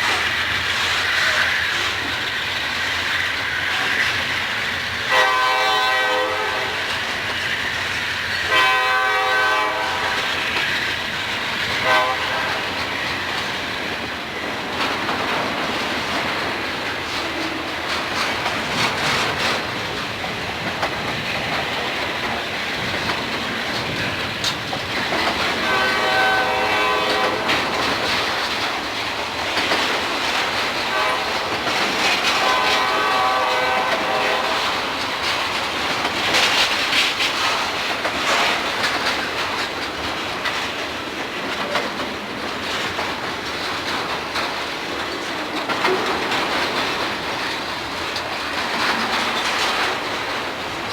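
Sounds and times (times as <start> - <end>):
clattering train wheels: 0.0 - 50.9
freight train rumbling past: 0.0 - 50.9
diesel locomotive horn blasts: 5.1 - 6.9, 8.5 - 10.3, 11.8 - 12.8, 25.6 - 27.7, 30.9 - 31.5, 32.3 - 34.8.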